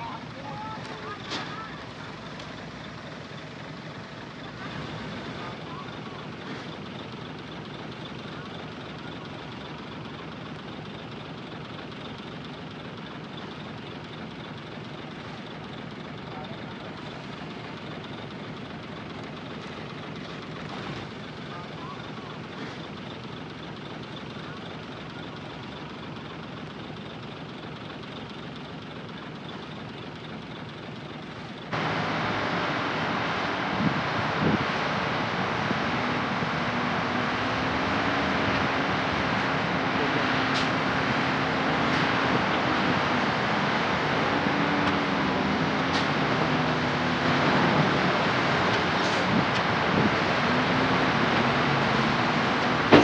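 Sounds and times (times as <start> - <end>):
diesel engine rumble: 0.0 - 53.0.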